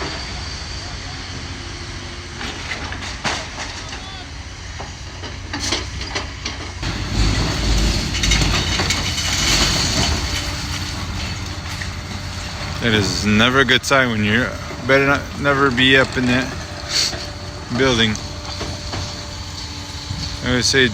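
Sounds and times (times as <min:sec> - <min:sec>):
excavator knocks and scraping: 0:02.4 - 0:04.1, 0:04.8 - 0:20.9
rumble of falling brick debris: 0:05.1 - 0:20.9.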